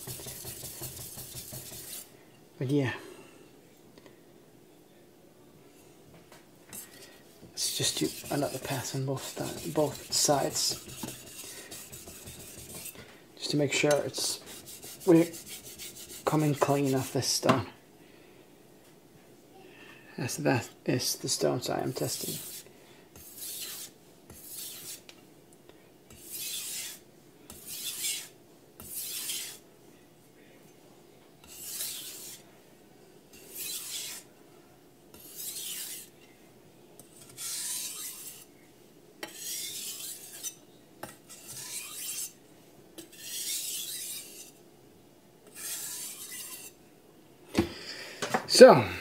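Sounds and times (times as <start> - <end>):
knife scraping on whetstone: 0.0 - 2.1, 6.8 - 13.0, 13.8 - 17.1, 22.0 - 22.6, 23.2 - 25.1, 26.1 - 29.6, 31.4 - 32.4, 33.3 - 34.3, 35.1 - 36.1, 37.2 - 38.5, 39.2 - 42.4, 43.0 - 44.6, 45.5 - 46.8.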